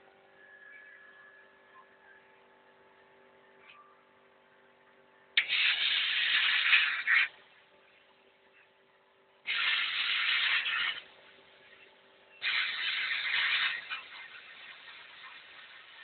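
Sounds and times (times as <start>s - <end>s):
faint steady hum: 0.0s - 16.0s
hissing spray bursts: 5.4s - 7.4s, 9.5s - 11.1s, 12.4s - 16.0s.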